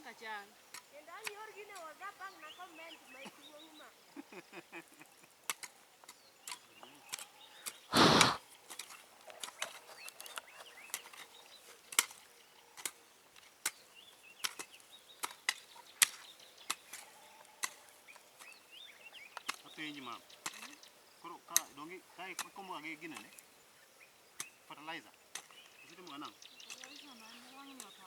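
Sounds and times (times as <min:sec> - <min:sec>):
short rush of noise: 0:07.9 - 0:08.4.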